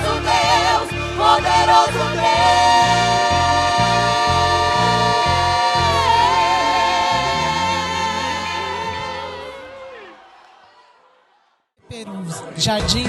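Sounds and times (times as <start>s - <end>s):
band bass rhythm: 0.0s - 9.6s
gospel choir singing: 0.0s - 11.4s.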